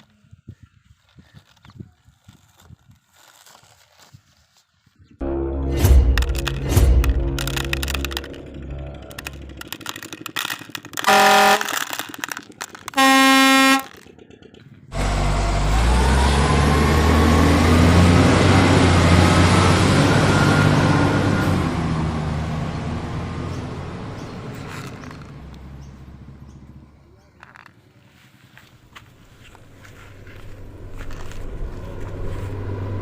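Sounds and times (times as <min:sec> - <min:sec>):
heavy vehicle engine running: 0:05.2 - 0:33.0
vehicle horn honking: 0:11.0 - 0:11.9, 0:12.8 - 0:14.0.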